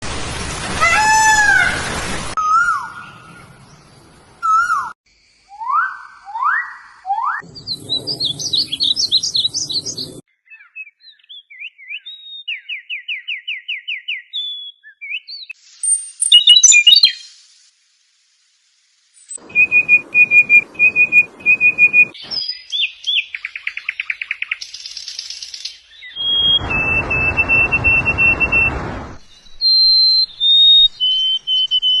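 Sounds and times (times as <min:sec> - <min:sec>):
songbirds singing: 0:07.4 - 0:17.3, 0:19.3 - 0:32.0.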